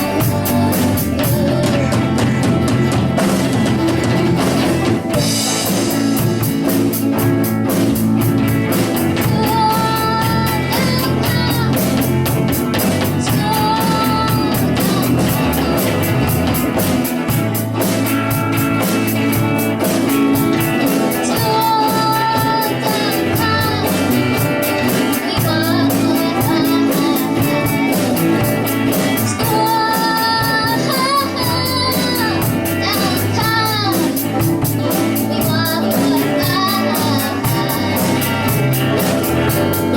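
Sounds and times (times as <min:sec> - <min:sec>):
person singing long notes: 0:00.0 - 0:02.9
rock band playing: 0:00.0 - 0:39.9
steady drum beat: 0:00.0 - 0:39.9.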